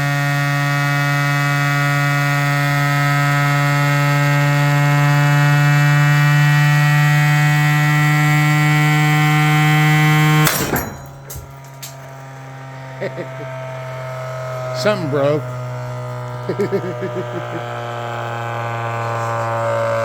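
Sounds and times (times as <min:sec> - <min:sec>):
short noisy clatter: 0:10.5 - 0:12.3.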